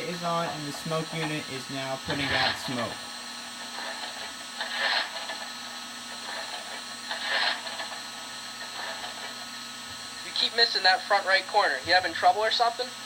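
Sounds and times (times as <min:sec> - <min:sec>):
steady low hum: 0:00.0 - 0:13.0
shovel scraping coal: 0:03.7 - 0:05.5, 0:06.2 - 0:08.0.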